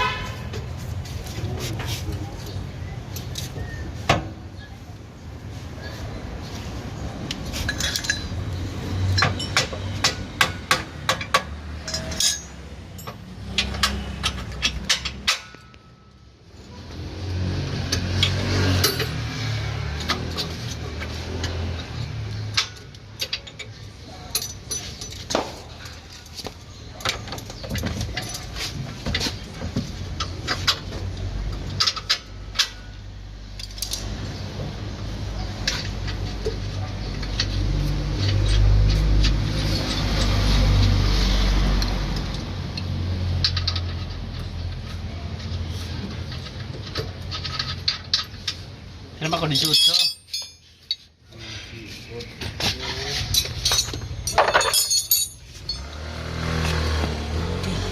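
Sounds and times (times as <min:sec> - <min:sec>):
metal tools clinking on metal: 0:07.4 - 0:17.0, 0:17.9 - 0:34.2, 0:42.2 - 0:51.2, 0:52.4 - 0:56.8.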